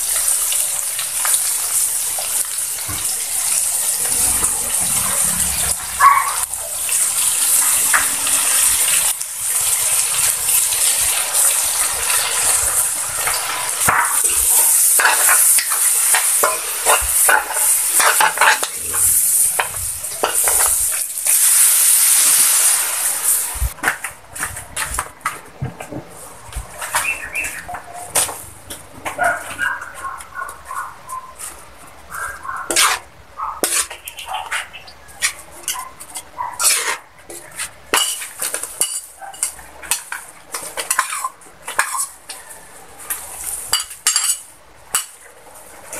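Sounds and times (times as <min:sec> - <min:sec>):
vegetables sizzling in oil: 0:00.0 - 0:23.8, 0:31.4 - 0:35.6, 0:36.6 - 0:45.9
metal spatula scraping pan: 0:03.4 - 0:06.0, 0:12.1 - 0:21.0, 0:32.2 - 0:40.2, 0:40.8 - 0:42.2.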